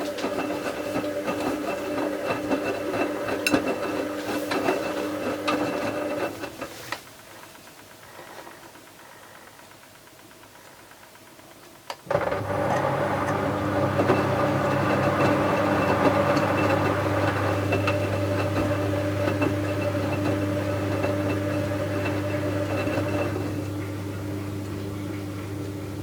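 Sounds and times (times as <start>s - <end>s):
washing machine humming: 0.0s - 26.0s.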